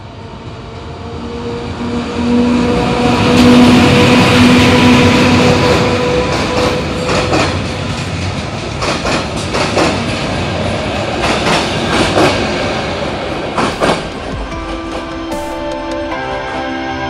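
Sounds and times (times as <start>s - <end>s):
train coaches rumbling past: 0.0s - 17.0s
wheels clicking over rail joints: 6.3s - 10.2s.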